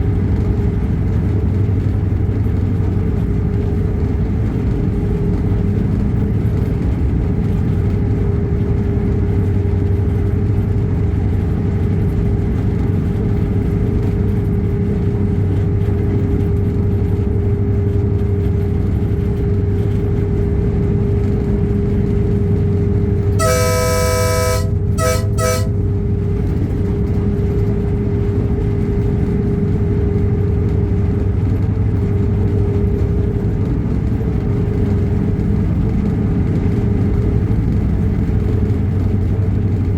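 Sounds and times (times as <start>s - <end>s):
train running with drone: 0.0s - 39.9s
train horn blasts and toots: 23.4s - 25.9s.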